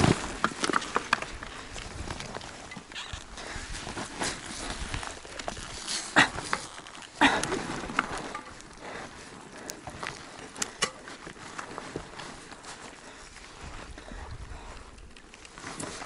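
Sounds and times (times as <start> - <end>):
knocks and scrapes on stones: 0.0 - 1.5.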